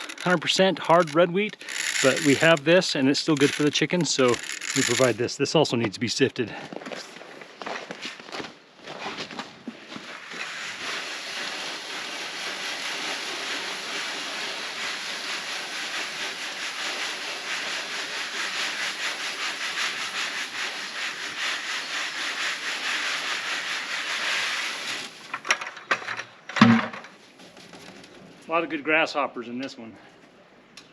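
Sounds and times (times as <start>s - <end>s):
wheat rattling through a screen: 0.0s - 5.2s, 10.0s - 25.6s.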